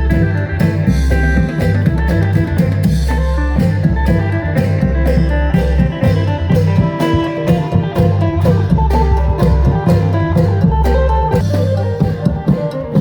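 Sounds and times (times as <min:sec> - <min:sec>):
steady drum beat: 0:00.0 - 0:13.0
sustained bass notes: 0:00.0 - 0:13.0.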